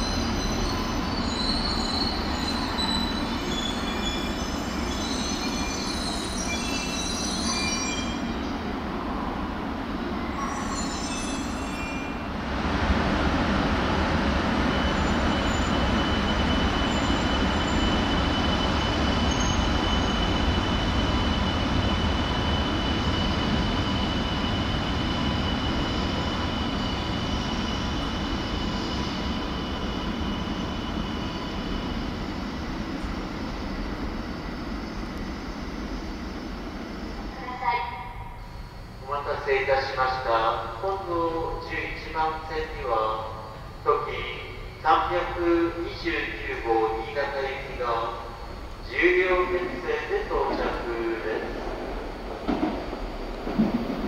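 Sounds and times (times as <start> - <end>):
high-speed train passing: 0.0 - 54.0.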